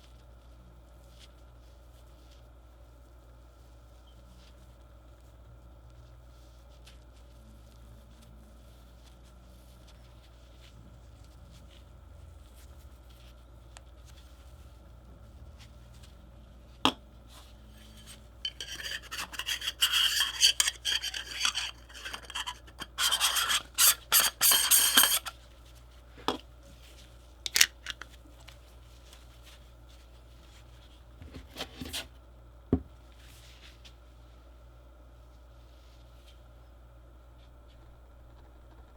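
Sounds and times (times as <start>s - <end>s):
rubbing and scraping: 17.7s - 25.4s.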